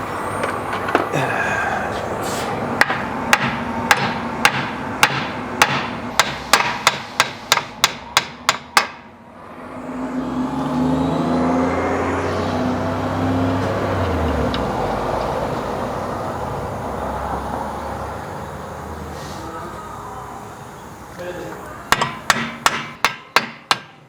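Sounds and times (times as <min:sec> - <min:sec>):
steady mechanical hum: 0:00.0 - 0:24.0
hammer striking metal: 0:02.8 - 0:09.2, 0:21.9 - 0:24.0.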